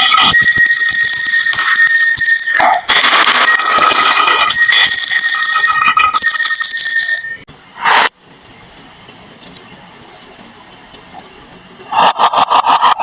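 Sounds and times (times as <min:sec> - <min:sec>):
marbles rattling down wooden run: 0:00.4 - 0:06.7.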